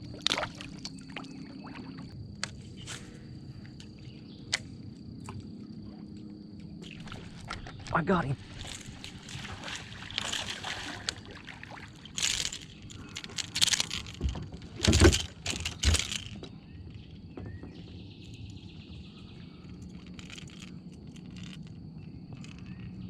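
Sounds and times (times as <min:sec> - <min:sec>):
fish splashing beside a kayak: 0:00.0 - 0:03.3, 0:06.8 - 0:17.1.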